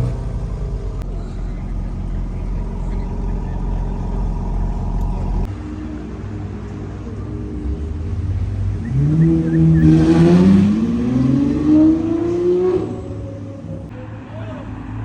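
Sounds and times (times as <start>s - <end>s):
car engine accelerating hard: 0.0s - 5.5s, 8.8s - 13.3s.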